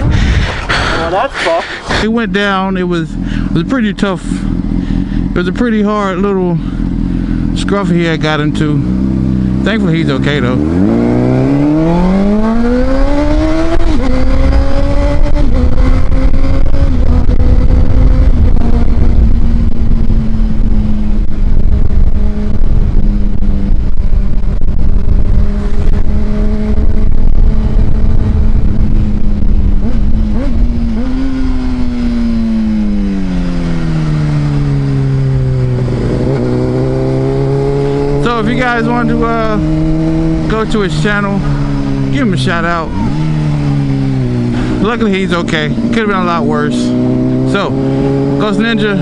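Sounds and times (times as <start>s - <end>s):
wind noise on microphone: 0.0s - 2.1s, 10.6s - 44.9s
motorcycle engine running: 0.0s - 49.0s.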